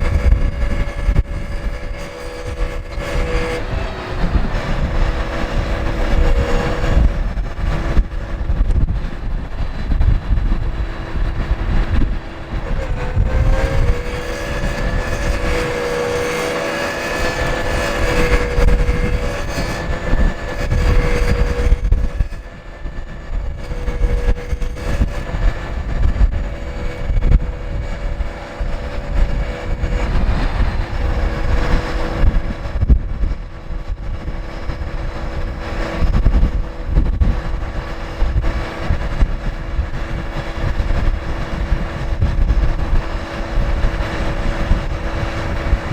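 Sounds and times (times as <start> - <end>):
diesel truck engine running: 0.0 - 45.9
steady whine: 0.0 - 45.9
wind buffeting microphone: 0.0 - 45.9.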